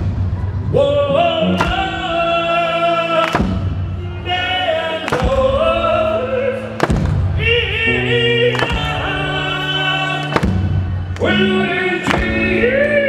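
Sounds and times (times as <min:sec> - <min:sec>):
gospel-style singing: 0:00.7 - 0:13.0
sharp drum beat: 0:01.6 - 0:02.4.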